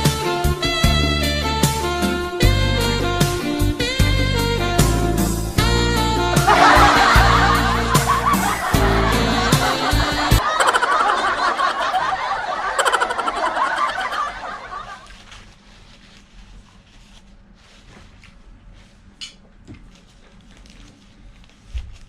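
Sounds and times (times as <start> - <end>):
laughter over music: 6.2 - 15.2.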